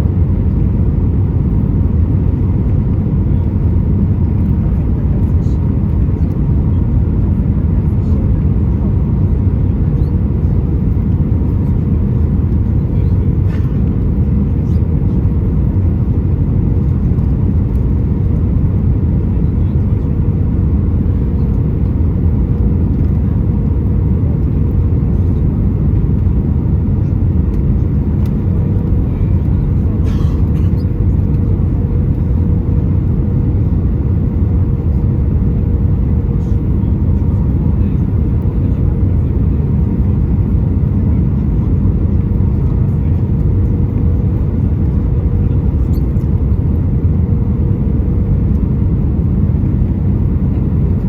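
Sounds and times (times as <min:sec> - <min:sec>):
airliner cabin rumble: 0:00.0 - 0:51.0.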